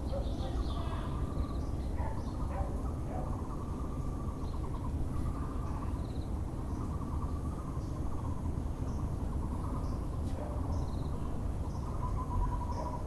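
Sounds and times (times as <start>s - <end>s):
low background rumble: 0.0s - 13.0s
small birds chirping: 0.0s - 13.0s.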